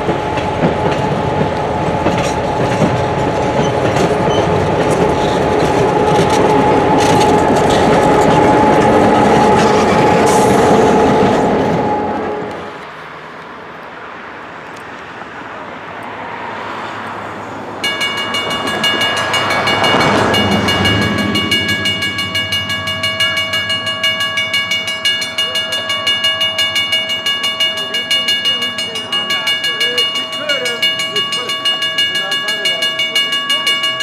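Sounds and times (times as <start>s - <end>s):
rumble of passing train: 0.0s - 34.0s
bell ringing: 17.8s - 34.0s.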